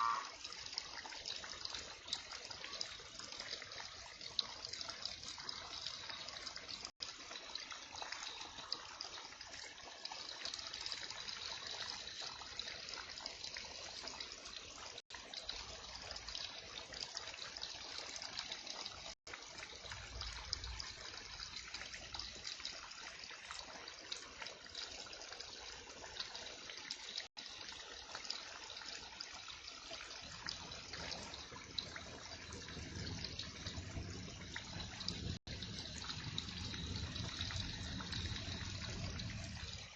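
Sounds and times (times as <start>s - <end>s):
heavy rain: 30.7s - 39.9s.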